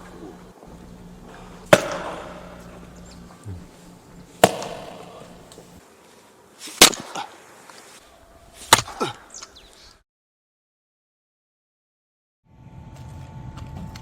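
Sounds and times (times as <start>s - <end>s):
axe chopping wood: 1.7s - 2.8s, 4.4s - 5.6s, 6.8s - 7.3s, 8.6s - 9.2s.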